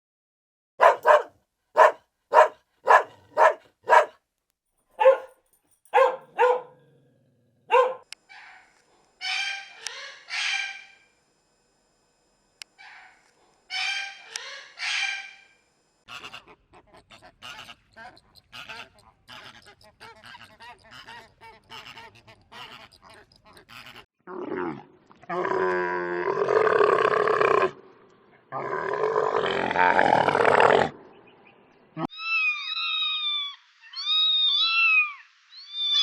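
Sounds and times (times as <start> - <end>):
drawn-out animal calls: 0.8 - 4.1, 5.0 - 5.3, 6.0 - 6.8, 7.7 - 8.1, 16.1 - 24.1
dog barking: 0.8 - 4.2, 5.0 - 6.8, 7.7 - 8.6.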